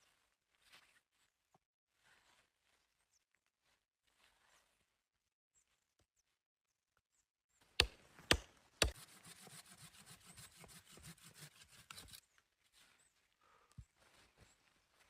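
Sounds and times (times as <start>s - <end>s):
rasping strokes on wood: 7.8s - 12.2s.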